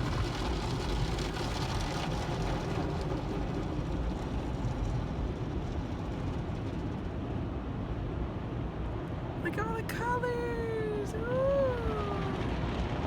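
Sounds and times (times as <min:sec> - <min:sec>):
water rushing in car wash: 0:00.0 - 0:09.4.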